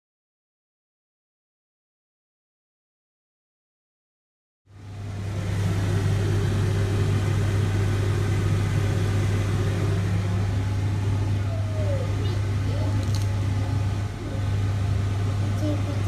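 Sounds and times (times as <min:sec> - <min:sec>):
appliance motor humming: 0:05.0 - 0:16.0.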